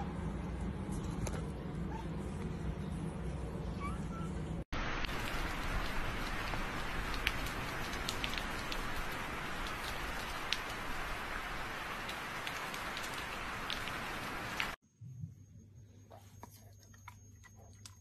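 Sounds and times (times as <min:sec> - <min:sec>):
rain hissing: 0:04.7 - 0:14.8
raindrops ticking: 0:04.8 - 0:14.8.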